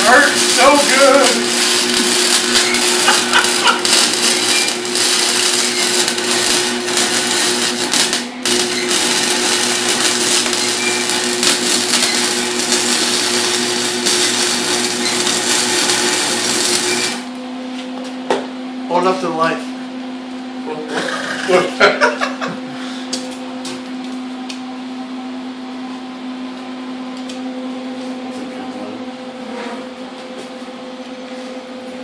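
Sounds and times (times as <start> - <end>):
welding crackle and sizzle: 0.0 - 17.4
low electrical hum: 0.0 - 32.0.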